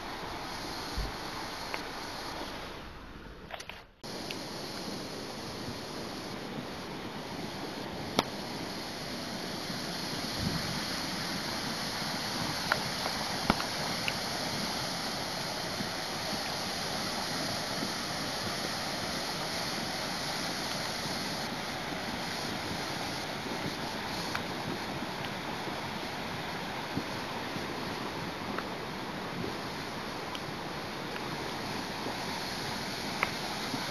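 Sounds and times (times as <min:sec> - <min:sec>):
rain on car: 0:04.0 - 0:33.9.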